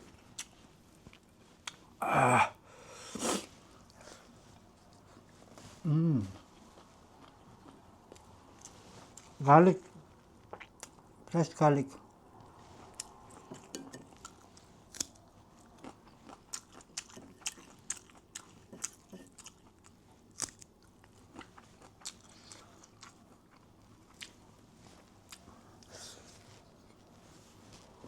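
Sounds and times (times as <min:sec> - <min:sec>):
person chewing crunchy food: 0:00.1 - 0:01.9, 0:10.1 - 0:11.2, 0:12.4 - 0:28.0.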